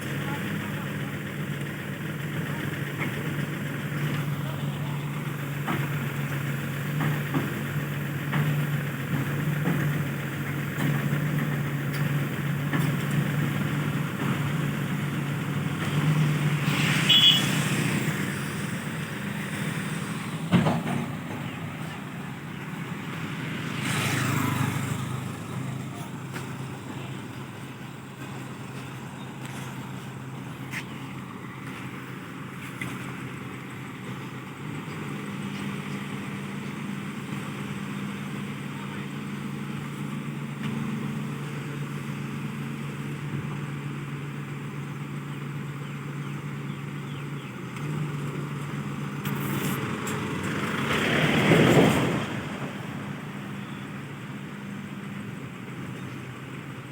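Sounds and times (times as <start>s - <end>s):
diesel engine idling: 0.0s - 56.9s
vehicle passing by: 15.4s - 32.0s, 49.0s - 54.0s.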